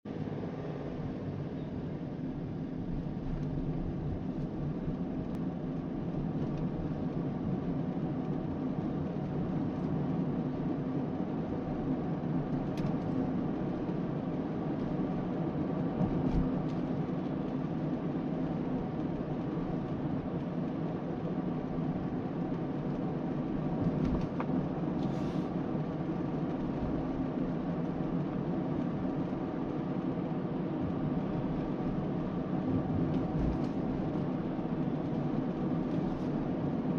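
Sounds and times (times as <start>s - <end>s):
car road noise: 0.0s - 36.9s.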